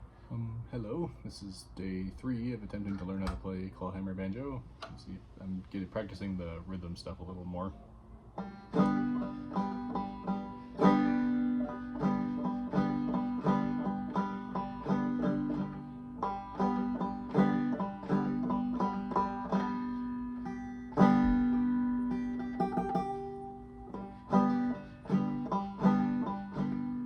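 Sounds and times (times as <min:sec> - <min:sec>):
banjo playing: 0:08.4 - 0:27.0.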